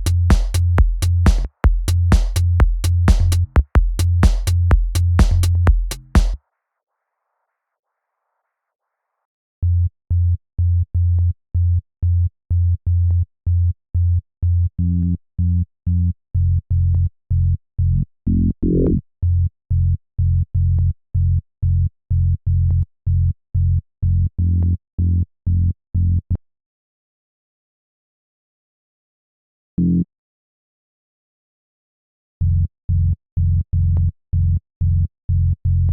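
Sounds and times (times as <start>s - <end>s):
synth bass line: 0.0s - 6.4s.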